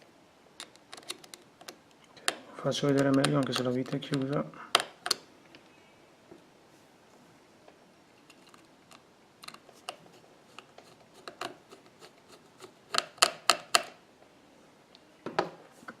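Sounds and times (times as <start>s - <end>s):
small tools clicking and tapping: 0.6s - 5.2s, 8.3s - 14.0s.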